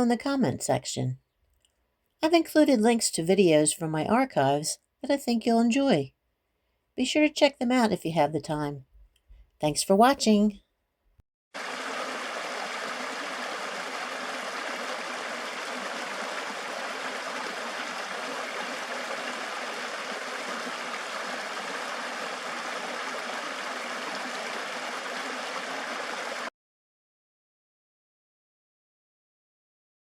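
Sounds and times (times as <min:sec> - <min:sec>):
creek water rushing: 0:11.6 - 0:26.5.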